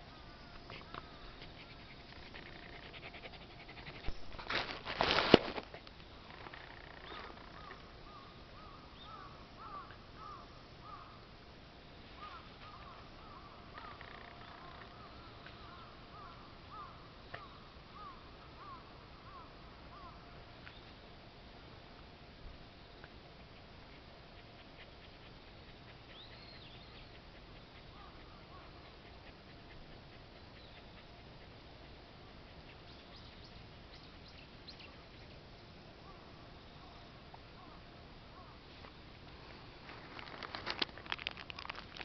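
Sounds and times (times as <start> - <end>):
bird chirping: 6.3 - 11.0, 25.0 - 31.3, 32.6 - 35.4.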